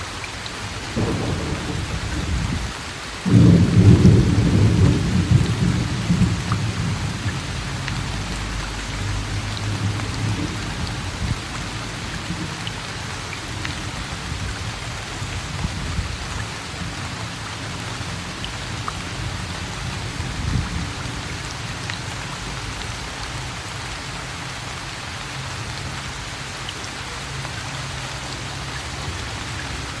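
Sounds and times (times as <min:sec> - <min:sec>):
steady rain falling: 0:00.0 - 0:30.0
low rumble of thunder: 0:00.9 - 0:17.0, 0:19.1 - 0:21.2.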